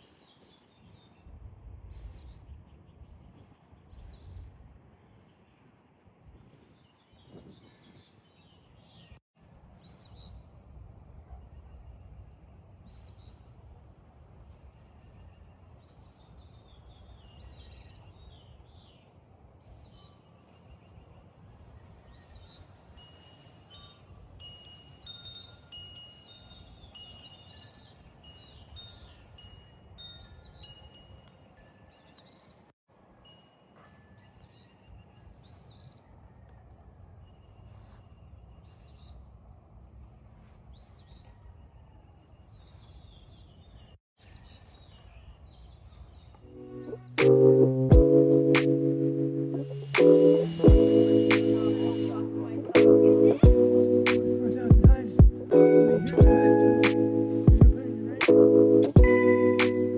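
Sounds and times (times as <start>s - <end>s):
bird chirping: 0.0s - 5.7s, 6.4s - 13.6s, 14.4s - 23.9s, 40.7s - 48.5s, 49.6s - 59.9s
high whistled bird notes: 49.7s - 59.9s.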